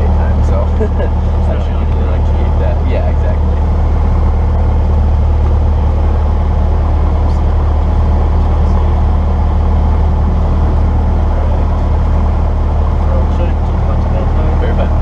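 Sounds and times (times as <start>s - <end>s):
propeller plane engine droning: 0.0s - 15.0s.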